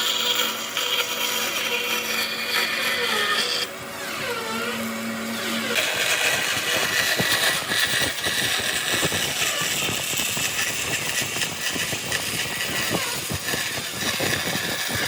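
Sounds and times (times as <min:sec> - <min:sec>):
power tool whining: 0:00.0 - 0:15.0.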